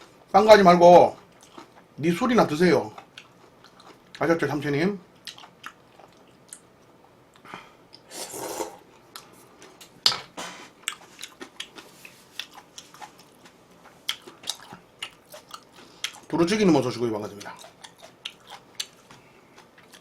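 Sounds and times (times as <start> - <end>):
chewing and wet mouth sounds: 1.0 - 2.0, 2.8 - 4.3, 5.1 - 8.1, 10.8 - 20.0.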